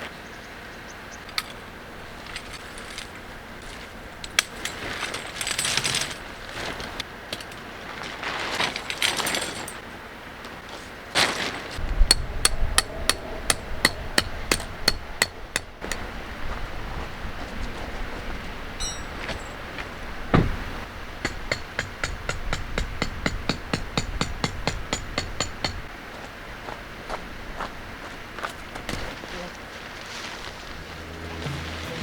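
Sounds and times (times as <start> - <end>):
rustling: 1.4 - 9.8, 10.6 - 12.0, 28.9 - 32.0
hammer strikes: 18.8 - 19.5.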